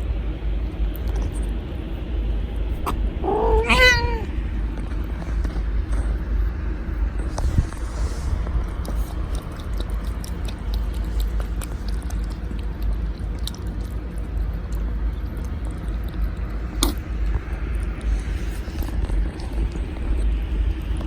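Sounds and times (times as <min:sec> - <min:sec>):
steady low rumble: 0:00.0 - 0:21.0
cat lapping and chewing: 0:07.2 - 0:21.0.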